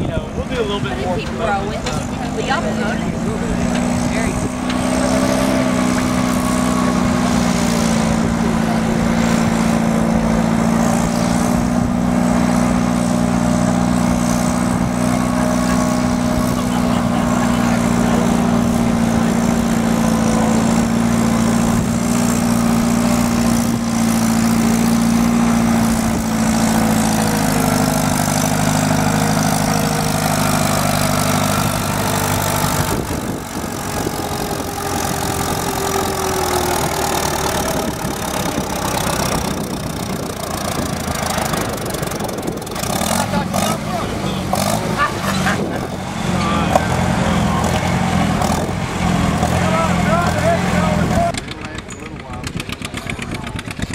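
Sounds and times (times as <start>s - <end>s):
large engine idling: 0.0s - 53.9s.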